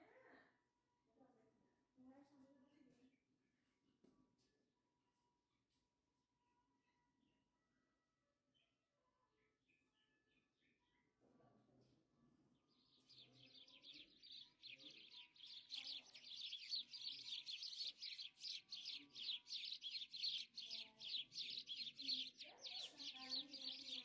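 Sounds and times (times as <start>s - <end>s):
birds chirping rapidly: 12.7s - 24.0s.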